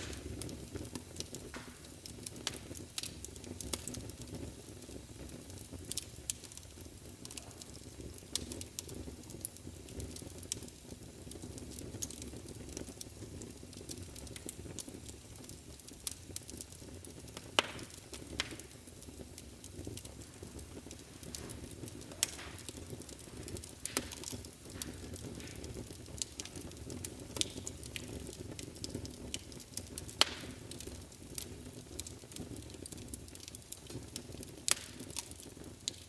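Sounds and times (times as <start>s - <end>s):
wood fire crackling and popping: 0.0s - 36.0s.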